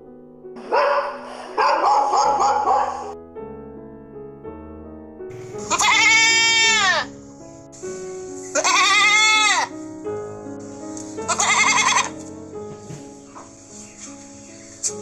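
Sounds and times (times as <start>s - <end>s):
background music: 0.0s - 15.0s
goat or sheep bleating: 5.6s - 7.1s, 8.5s - 9.7s, 11.3s - 12.2s.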